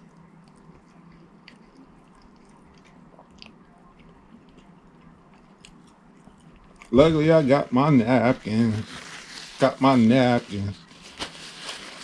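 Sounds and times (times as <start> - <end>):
chewing and mouth sounds: 0.0 - 7.0
low steady hum: 0.0 - 12.0.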